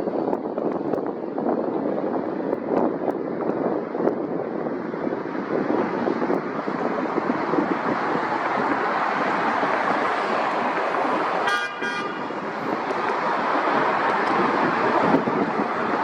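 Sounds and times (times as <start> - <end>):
traffic: 0.0 - 16.0
wind: 0.0 - 16.0
vehicle horn double toot: 11.4 - 12.4.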